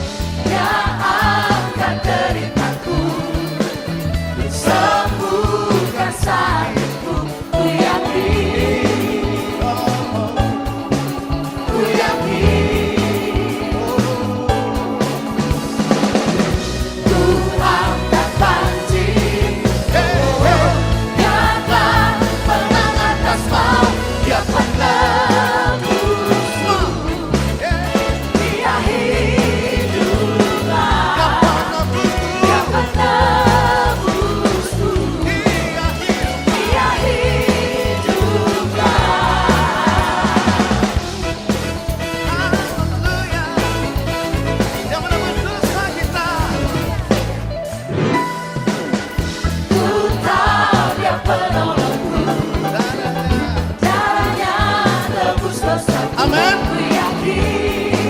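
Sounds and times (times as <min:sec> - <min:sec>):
people singing: 0:00.0 - 0:48.0, 0:48.7 - 0:58.0
bass guitar: 0:00.0 - 0:58.0
drums: 0:00.0 - 0:58.0
worship band playing: 0:00.0 - 0:58.0
person singing: 0:55.9 - 0:58.0.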